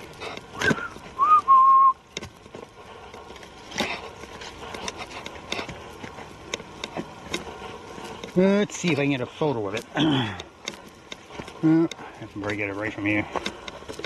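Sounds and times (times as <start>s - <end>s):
footsteps on forest trail: 0.0s - 14.0s
person whistling: 0.6s - 2.0s.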